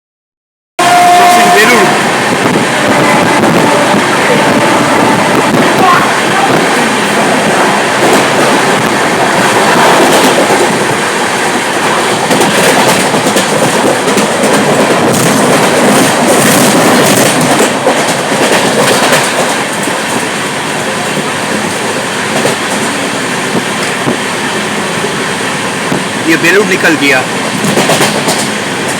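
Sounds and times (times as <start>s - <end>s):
train rushing on rails: 0.8s - 28.9s
wheels clacking over rail joints: 5.3s - 26.2s, 27.3s - 28.9s.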